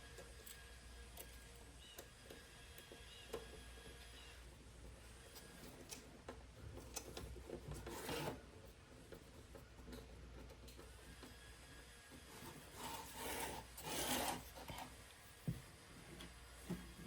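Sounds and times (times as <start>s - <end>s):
rasping scrape: 12.3s - 15.0s.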